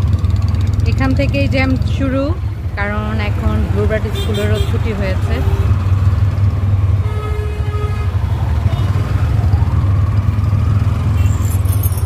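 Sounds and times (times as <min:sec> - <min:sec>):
auto-rickshaw engine hum: 0:00.0 - 0:12.0
vehicle horn: 0:04.1 - 0:04.8, 0:07.0 - 0:08.2.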